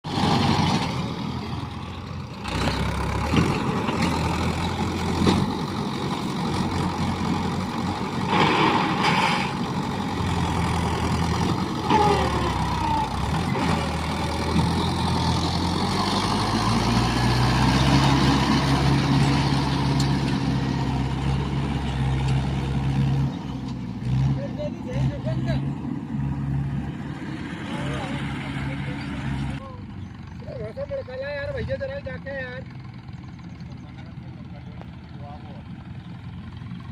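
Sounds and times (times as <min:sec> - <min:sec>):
tractor diesel engine under load: 0:00.0 - 0:36.9.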